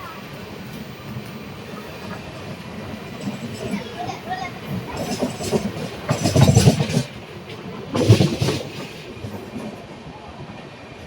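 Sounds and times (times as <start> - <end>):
train wagons rumbling on track: 0.0 - 11.0
wheel clatter over rail joints: 0.7 - 9.9.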